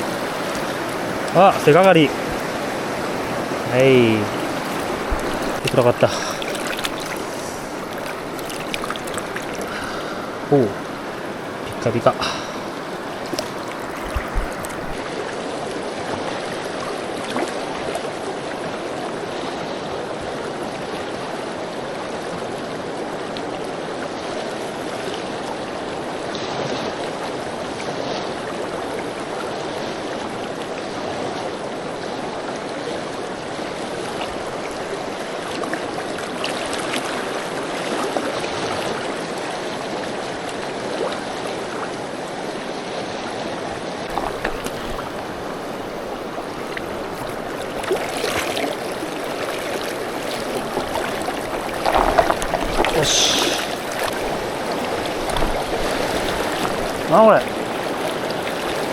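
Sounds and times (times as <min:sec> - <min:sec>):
river water rushing: 0:00.0 - 0:58.9.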